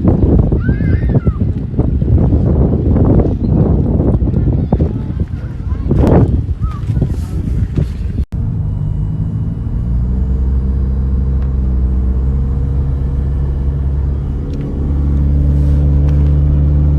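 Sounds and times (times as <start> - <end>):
jet ski engine droning: 7.8 - 16.9.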